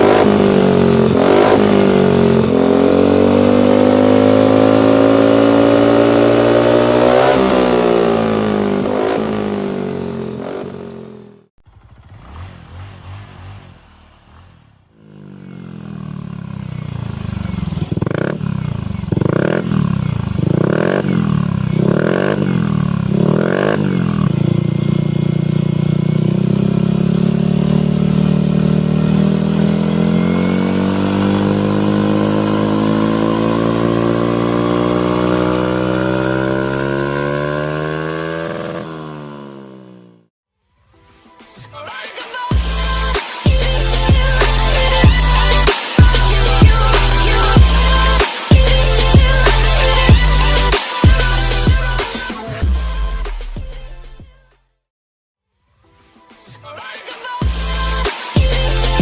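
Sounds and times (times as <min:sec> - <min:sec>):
scooter engine revving: 0:00.0 - 0:40.2, 0:44.1 - 0:52.5
engine idling with throttle blips: 0:11.6 - 0:14.7, 0:15.8 - 0:23.1.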